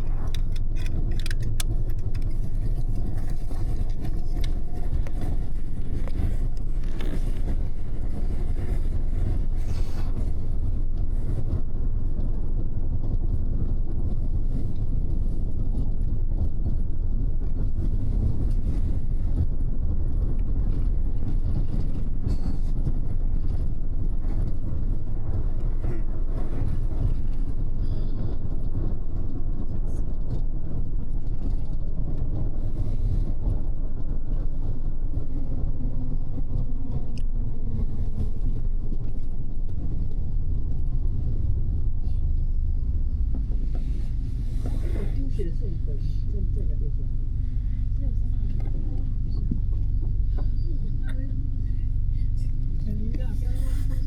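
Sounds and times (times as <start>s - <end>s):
bus diesel engine: 0.0s - 54.0s.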